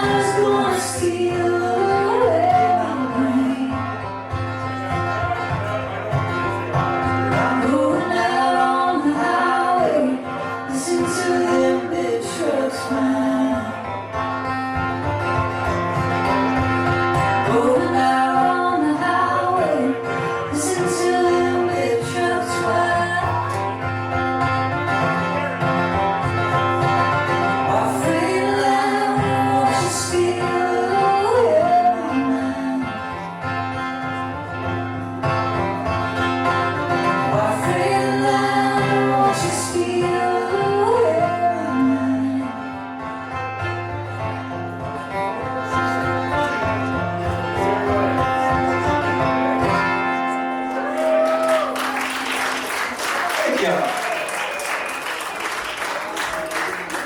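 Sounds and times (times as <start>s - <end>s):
guitar melody: 0.0s - 53.8s
live band music: 0.0s - 57.0s.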